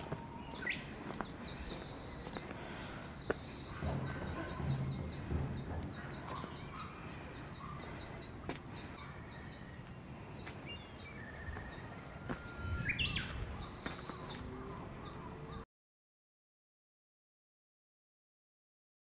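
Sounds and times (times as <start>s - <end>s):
small birds chirping: 0.0s - 15.6s
low outdoor rumble: 3.1s - 8.8s.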